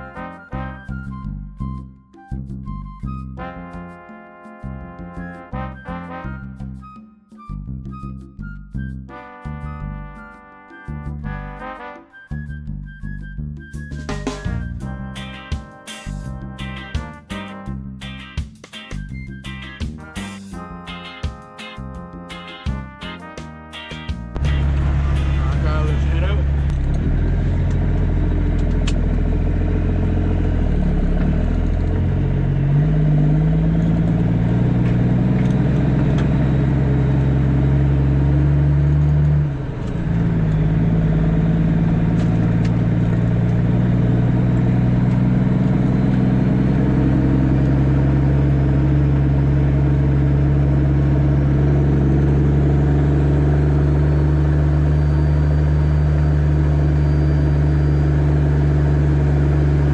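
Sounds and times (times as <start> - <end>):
diesel truck engine under load: 24.6 - 59.9.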